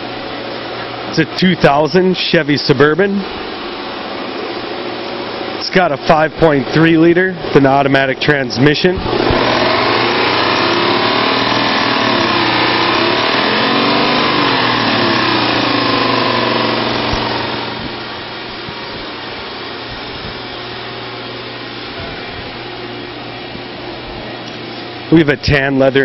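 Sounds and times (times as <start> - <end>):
engine revving and idling: 5.8 - 21.6.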